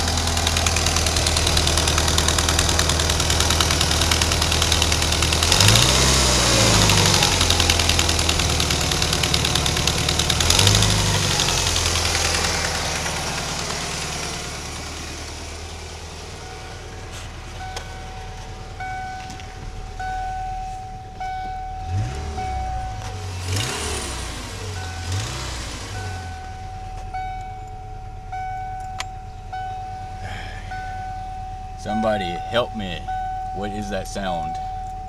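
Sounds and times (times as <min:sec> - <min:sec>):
engine hissing: 0:00.0 - 0:35.0
warning chime beeping: 0:15.8 - 0:35.0.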